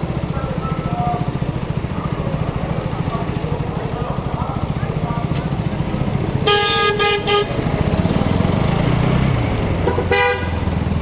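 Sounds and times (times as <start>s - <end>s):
motorcycle engine droning: 0.0s - 11.0s
vehicle horn honking: 6.4s - 7.8s, 9.8s - 10.8s.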